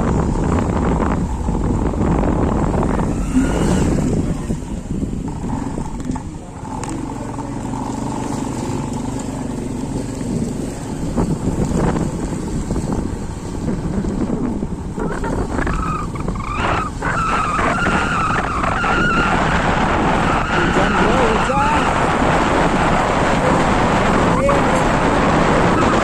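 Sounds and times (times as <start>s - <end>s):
vehicle engine running: 0.0s - 17.6s
rain: 0.0s - 26.0s.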